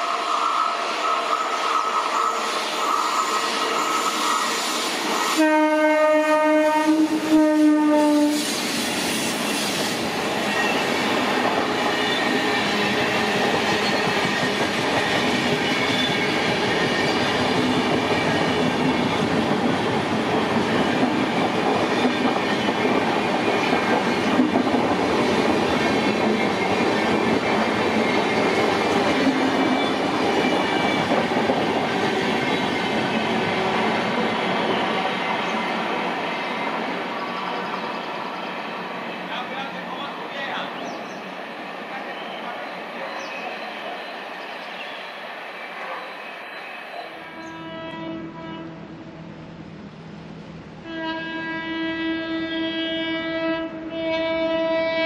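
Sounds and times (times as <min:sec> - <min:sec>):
train horn blast: 0:05.3 - 0:08.6, 0:47.3 - 0:49.1, 0:50.8 - 0:55.0
train wheels clickety-clack: 0:07.0 - 0:46.1.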